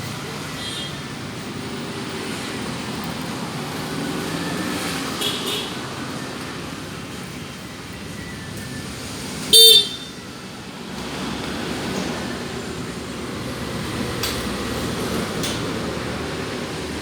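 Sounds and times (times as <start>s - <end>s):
motorcycle horn beep: 9.5s - 10.3s.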